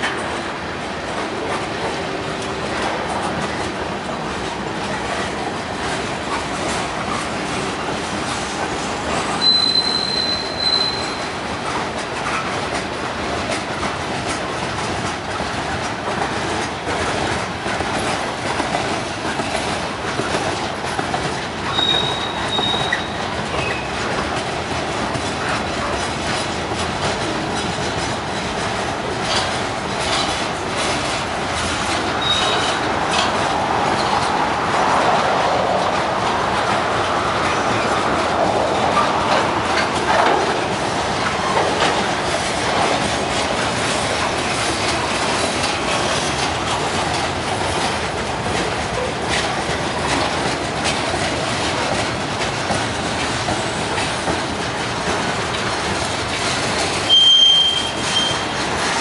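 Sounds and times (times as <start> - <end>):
train wheels rumbling and clattering: 0.0 - 59.0
wheel squeals: 9.4 - 11.3, 21.7 - 23.9, 32.2 - 32.8, 57.1 - 58.6.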